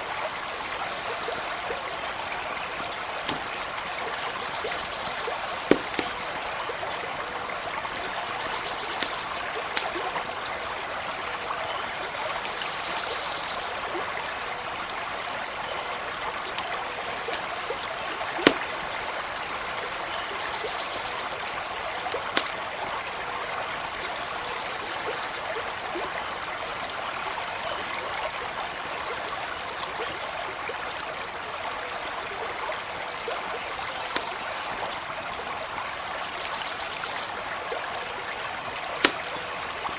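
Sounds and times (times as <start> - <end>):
campfire crackling: 0.0 - 23.4, 37.0 - 39.9
stream running over stones: 0.0 - 39.9.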